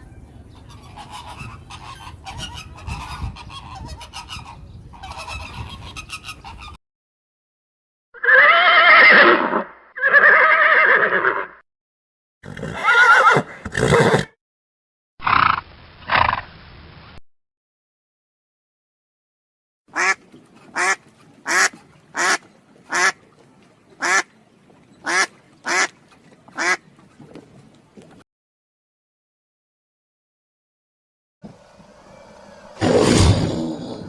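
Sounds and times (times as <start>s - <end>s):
animal calling loudly: 8.2s - 11.6s.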